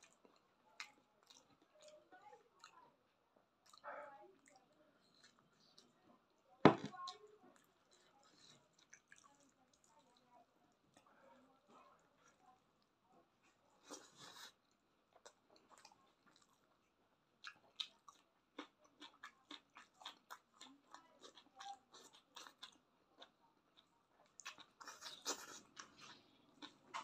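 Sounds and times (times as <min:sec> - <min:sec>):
person chewing with mouth clicks: 0:00.0 - 0:02.0, 0:03.6 - 0:03.8, 0:06.7 - 0:10.0, 0:13.8 - 0:16.6, 0:17.4 - 0:27.0.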